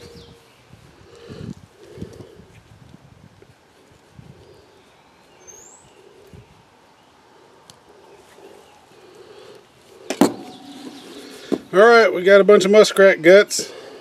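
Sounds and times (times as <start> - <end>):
rising bird chirp: 0.0 - 0.8, 4.4 - 12.0.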